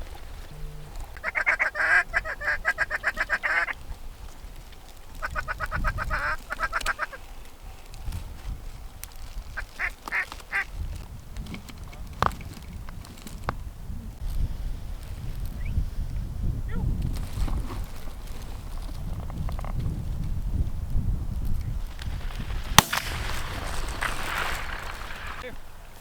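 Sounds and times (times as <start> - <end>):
rapid quacking: 1.2 - 3.8, 5.2 - 7.2.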